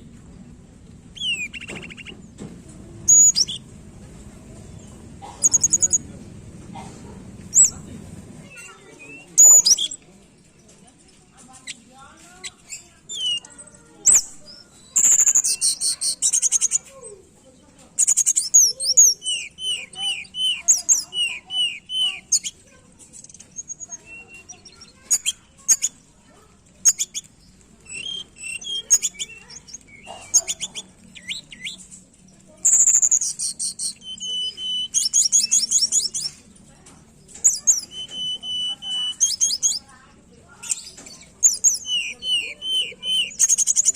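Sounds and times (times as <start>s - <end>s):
songbird singing whistles and trills: 1.1s - 2.3s, 3.0s - 3.7s, 7.5s - 7.8s, 8.4s - 10.1s, 12.4s - 16.9s, 18.0s - 26.0s, 26.8s - 31.9s, 32.6s - 36.4s, 37.3s - 39.9s, 40.6s - 43.9s.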